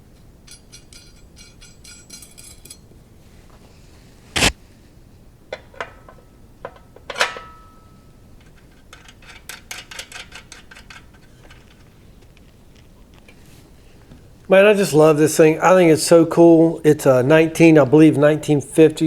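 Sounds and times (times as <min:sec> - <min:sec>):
metal parts clinking and knocking: 0:00.4 - 0:02.9, 0:05.5 - 0:07.8, 0:08.4 - 0:11.9.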